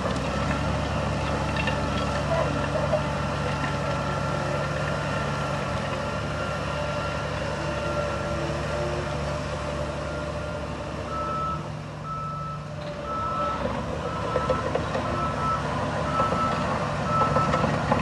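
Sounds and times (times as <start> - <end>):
reversing alarm beeping: 10.0 - 17.7.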